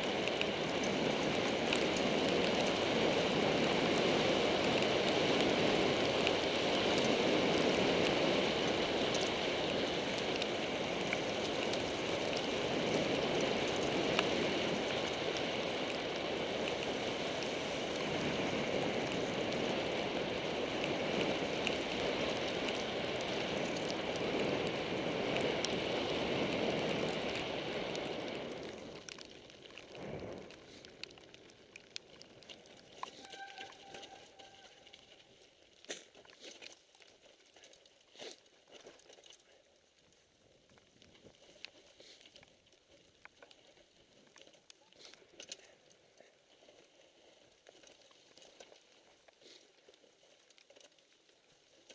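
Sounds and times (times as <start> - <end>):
rain patter: 0.0 - 51.9
bike clicks and rattles: 40.7 - 46.2.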